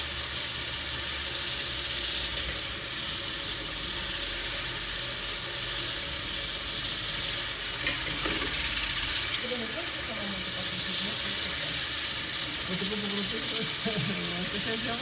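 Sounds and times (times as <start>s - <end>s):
water rushing hiss: 7.8s - 15.0s.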